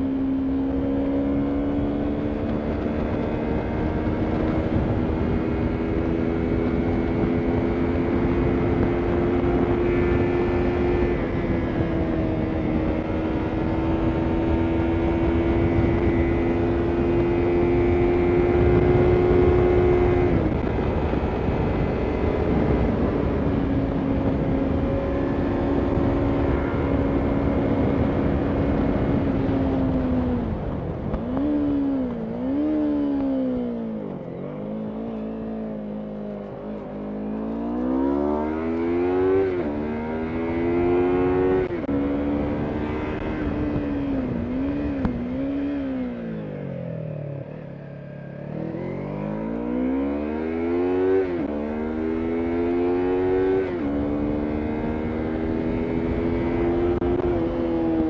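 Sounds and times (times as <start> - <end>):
motorcycle engine revving: 0.0 - 58.0
wind rush: 0.6 - 34.0, 37.6 - 47.0.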